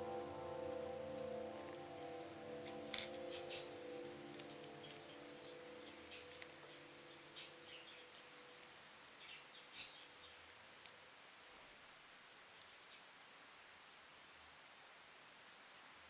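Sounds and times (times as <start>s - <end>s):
background music note: 0.0s - 8.6s.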